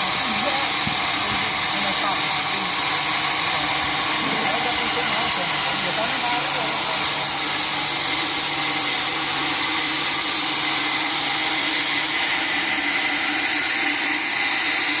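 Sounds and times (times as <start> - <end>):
sawmill machinery hissing and whining: 0.0 - 15.0.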